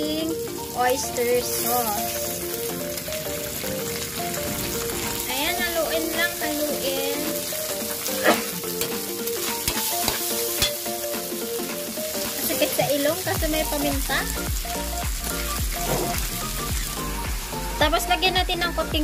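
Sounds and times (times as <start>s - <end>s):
chicken sizzling in hot oil: 0.0s - 18.8s
metal spatula scraping a wok: 7.9s - 10.9s, 15.8s - 16.2s.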